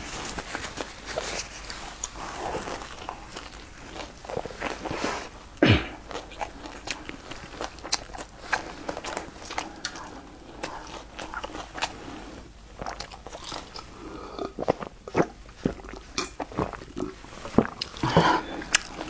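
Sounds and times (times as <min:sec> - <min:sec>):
person chewing: 0:00.0 - 0:19.0
person swallowing: 0:05.6 - 0:06.0.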